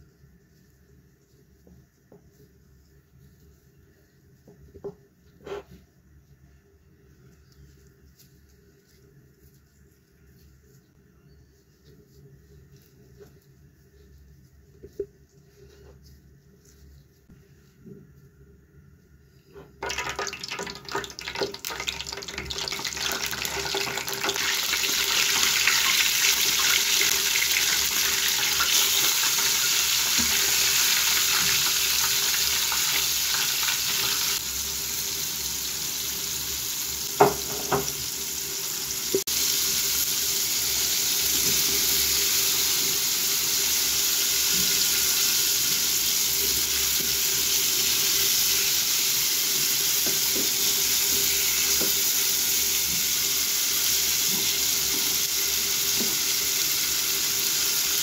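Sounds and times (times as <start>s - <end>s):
meat sizzling in hot oil: 19.8s - 58.0s.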